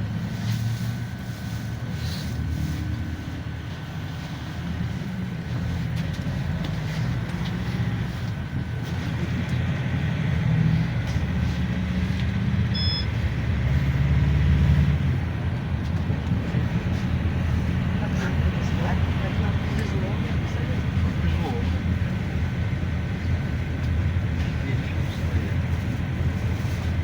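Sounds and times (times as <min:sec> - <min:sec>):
minibus engine drone: 0:00.0 - 0:27.0
short electronic beep: 0:12.7 - 0:13.1.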